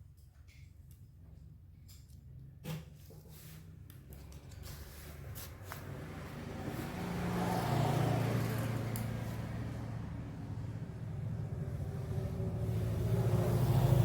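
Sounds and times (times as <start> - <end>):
vehicle engine running: 4.9 - 14.0.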